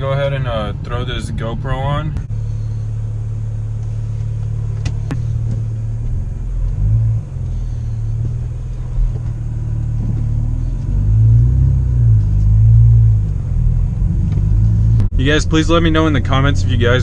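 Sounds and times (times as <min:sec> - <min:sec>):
car exhaust idling rumble: 0:00.0 - 0:17.0.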